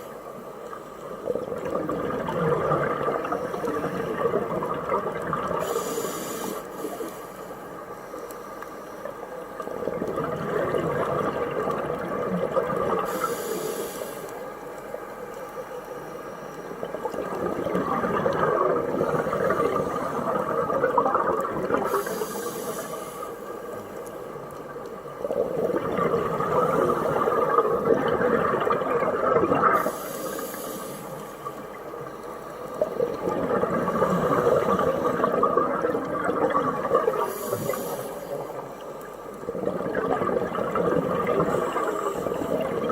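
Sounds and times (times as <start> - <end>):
bubbling exhale underwater: 1.1 - 6.5, 9.6 - 13.8, 16.8 - 23.2, 25.1 - 32.2, 32.8 - 38.8, 39.4 - 42.9
hissing regulator inhale: 5.6 - 9.2, 13.0 - 14.6, 19.0 - 20.5, 21.8 - 24.0, 29.7 - 31.8, 37.1 - 38.7, 41.4 - 42.9.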